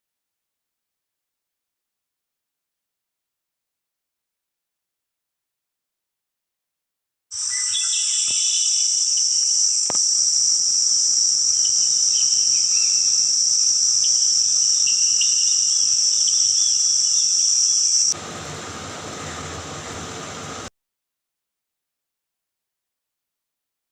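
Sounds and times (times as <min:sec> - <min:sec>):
faint chirps: 0:07.4 - 0:18.2
high-pitched insect chorus: 0:07.4 - 0:18.2.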